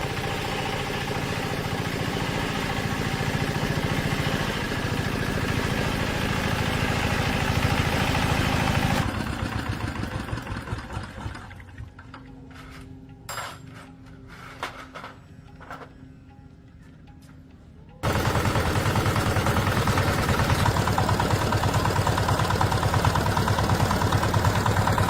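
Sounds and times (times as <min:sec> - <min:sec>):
tractor diesel engine running: 0:00.0 - 0:11.5, 0:18.0 - 0:25.0.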